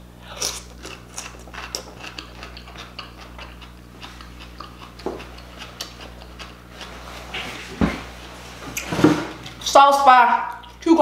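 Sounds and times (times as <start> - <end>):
crunchy chewing of cucumber: 0.0 - 7.7.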